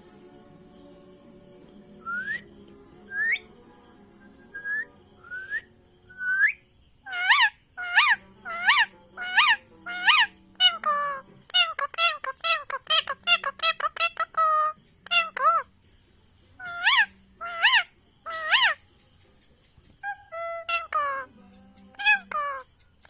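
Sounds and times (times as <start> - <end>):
parrot whistling: 2.0 - 2.5, 3.1 - 3.6, 4.4 - 15.6, 16.6 - 18.8, 20.0 - 21.3, 22.0 - 22.7.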